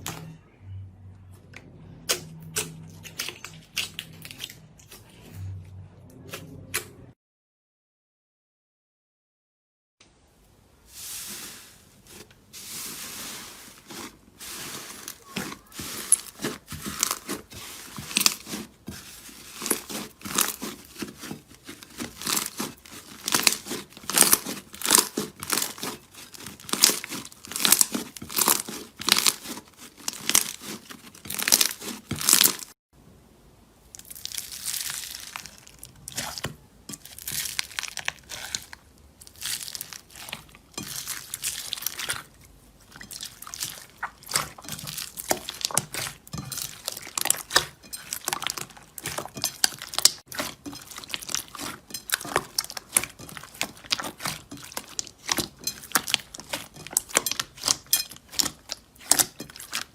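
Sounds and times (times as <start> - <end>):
slime crackling and popping: 13.8 - 32.8, 33.9 - 42.4, 43.0 - 59.9.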